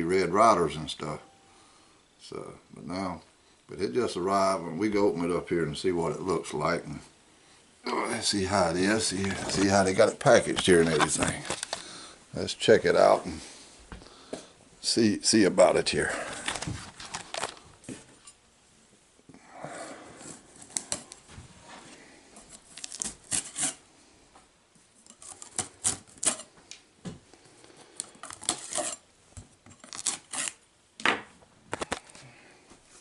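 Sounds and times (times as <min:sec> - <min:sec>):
cardboard rustling: 0:08.8 - 0:11.8, 0:16.2 - 0:18.1.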